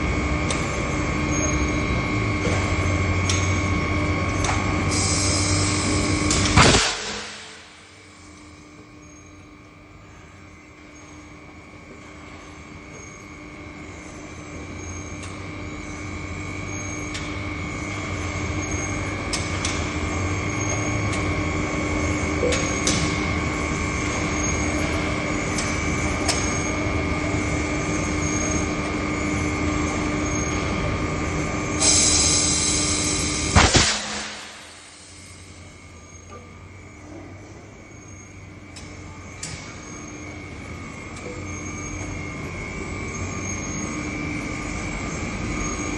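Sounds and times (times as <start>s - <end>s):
machinery whine: 0.0s - 45.9s
burst of hiss: 31.8s - 35.6s.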